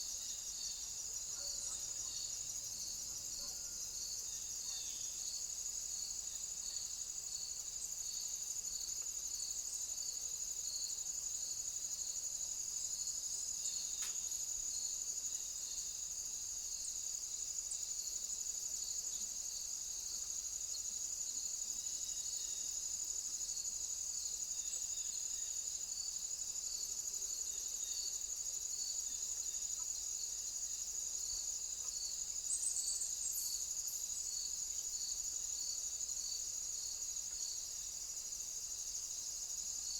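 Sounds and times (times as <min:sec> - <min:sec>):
insect high-pitched trill: 0:00.0 - 0:39.9
pulsing insect chirp: 0:00.0 - 0:39.9.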